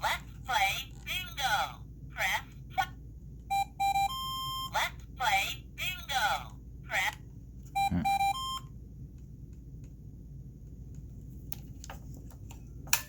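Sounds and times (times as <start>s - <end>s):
toy electronic beeps: 3.5s - 4.8s, 7.8s - 8.6s.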